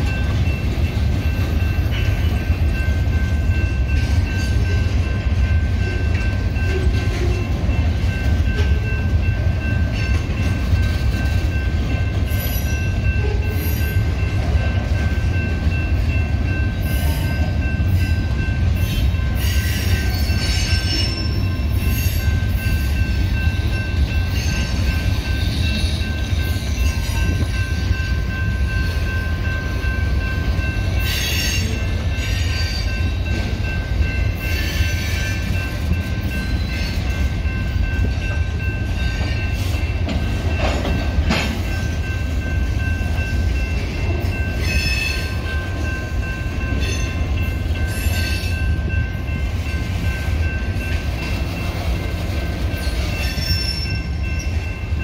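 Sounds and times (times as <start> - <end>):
train wheels rumbling on rails: 0.0 - 55.0
continuous high squeal: 15.4 - 40.8, 41.6 - 55.0.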